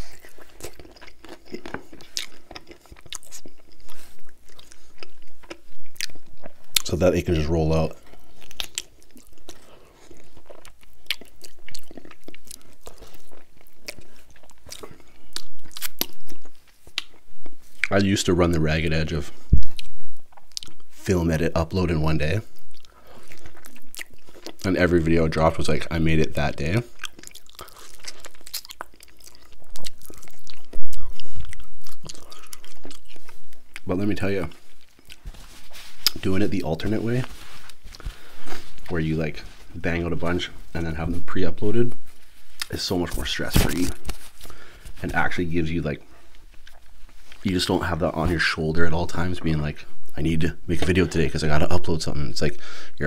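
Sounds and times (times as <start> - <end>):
man chewing meat off a bone: 0.0 - 6.9, 8.0 - 17.9, 22.5 - 24.6, 26.9 - 33.9.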